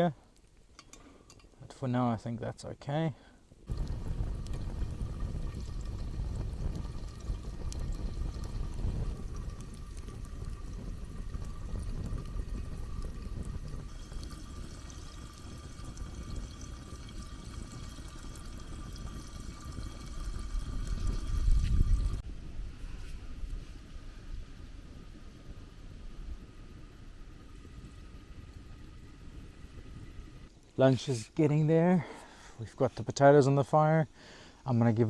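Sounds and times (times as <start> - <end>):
campfire hissing and crackling: 3.5 - 32.6
wind rumble on microphone: 3.7 - 30.6.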